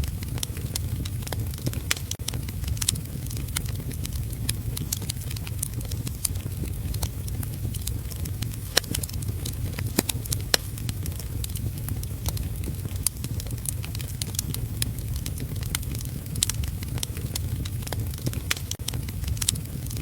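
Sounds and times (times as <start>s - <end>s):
rain patter: 0.0s - 20.0s
wood fire crackling: 0.0s - 20.0s.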